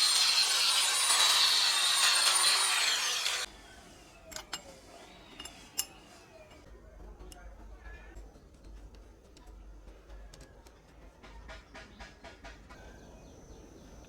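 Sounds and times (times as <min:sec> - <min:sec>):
power tool whining: 0:00.0 - 0:03.5.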